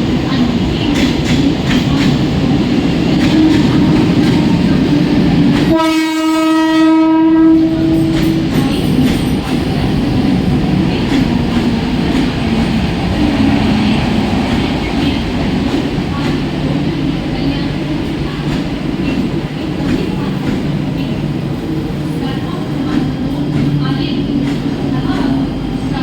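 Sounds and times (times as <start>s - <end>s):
electric train wheels rumbling on rails: 0.0s - 26.0s
train horn blast: 5.7s - 8.3s.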